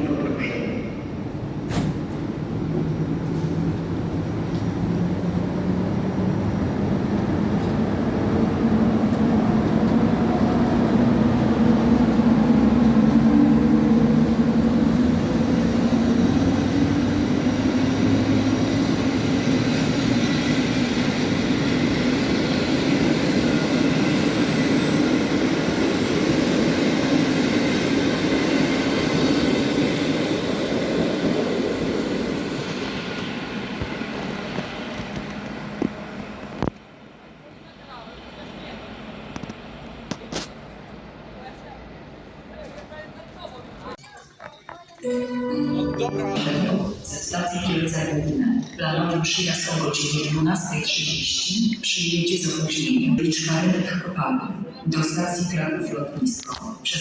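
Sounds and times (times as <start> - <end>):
train motors and wheels rumbling: 1.1 - 45.1.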